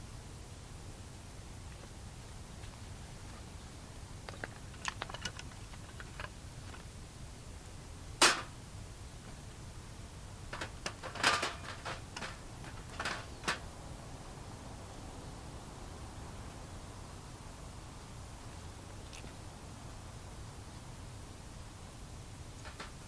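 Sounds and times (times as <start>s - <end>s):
sharp clicks and knocks: 4.2s - 6.9s, 10.5s - 13.6s, 22.6s - 23.0s.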